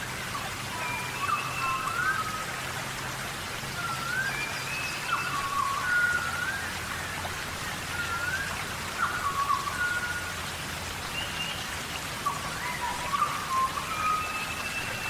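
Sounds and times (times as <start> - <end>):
rain falling on foliage: 0.0 - 15.0
short whistled calls: 7.9 - 10.3, 12.2 - 15.0.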